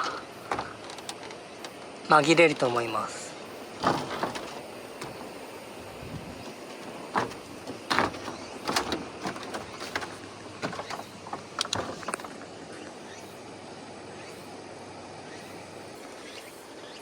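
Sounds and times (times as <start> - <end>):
knocks and clatters: 0.0 - 1.9, 3.7 - 12.6
steady background noise: 0.0 - 17.0.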